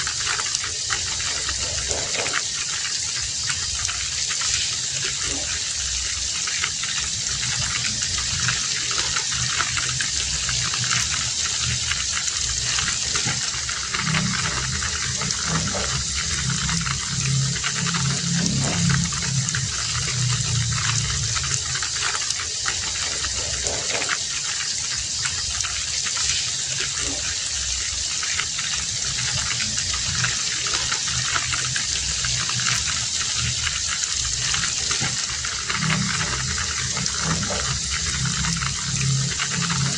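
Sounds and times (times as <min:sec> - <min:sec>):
heavy rain falling: 0:00.0 - 0:39.9
low hum: 0:05.1 - 0:24.3, 0:28.8 - 0:39.9.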